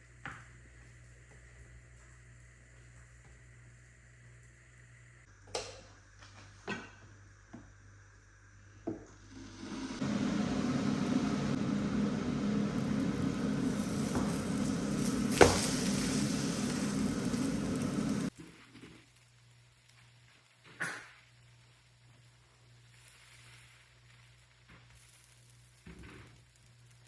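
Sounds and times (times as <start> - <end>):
loud steady whirring: 9.4 - 15.6.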